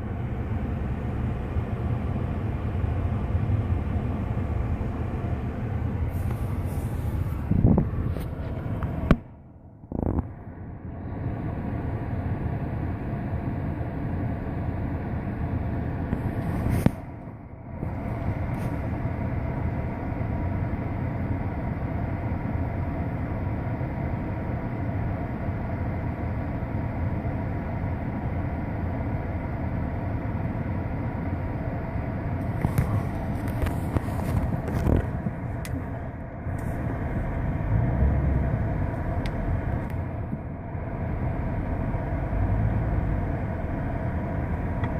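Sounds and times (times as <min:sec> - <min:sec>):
traffic rumble: 0:00.0 - 0:44.9.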